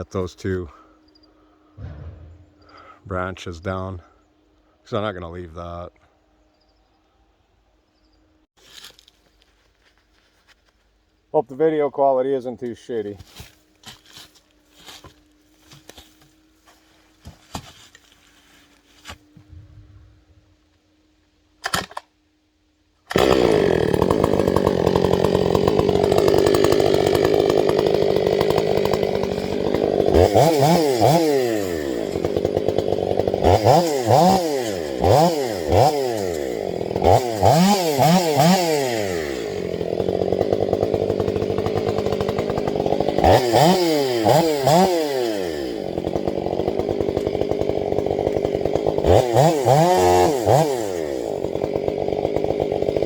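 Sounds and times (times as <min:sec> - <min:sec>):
chainsaw engine revving: 0:01.8 - 0:03.3, 0:23.1 - 0:53.0.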